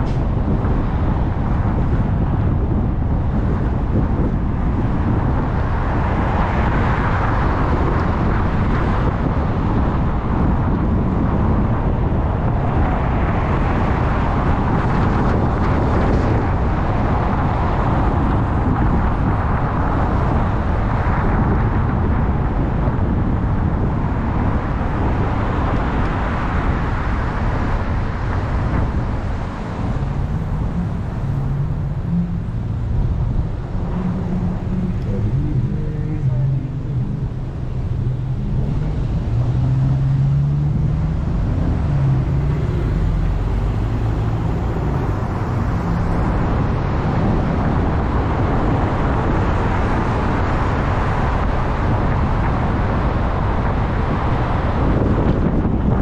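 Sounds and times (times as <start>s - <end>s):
car engine noise: 0.0s - 56.0s
road rumble: 0.0s - 56.0s
rushing air: 23.9s - 56.0s.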